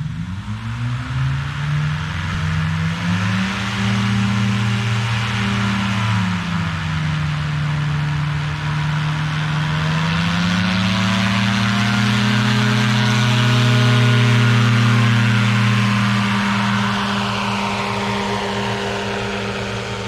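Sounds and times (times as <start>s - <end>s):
propeller engine running: 0.0s - 20.0s.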